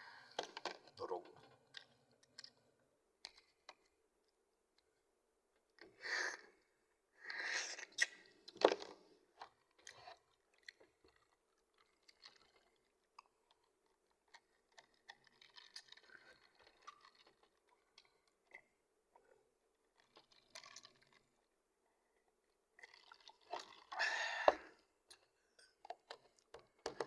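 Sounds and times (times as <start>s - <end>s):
person chewing food: 9.4s - 21.5s, 22.8s - 27.0s.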